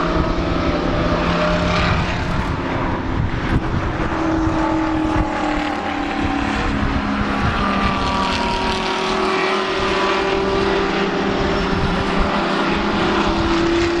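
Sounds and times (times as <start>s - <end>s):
race car engines: 0.0s - 14.0s.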